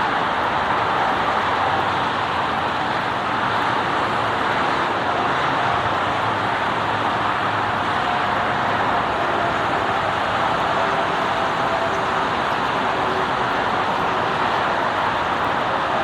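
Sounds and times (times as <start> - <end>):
engine roar: 0.0 - 16.0.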